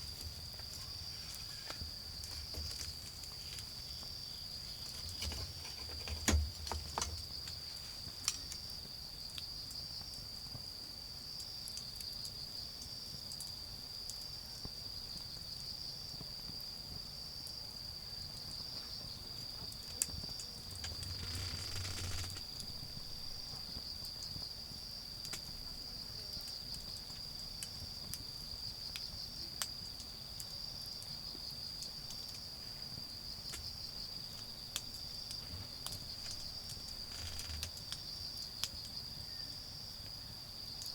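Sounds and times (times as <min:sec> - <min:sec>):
wood fire crackling: 0:00.0 - 0:09.5, 0:19.6 - 0:38.8
crickets trilling: 0:00.0 - 0:40.9.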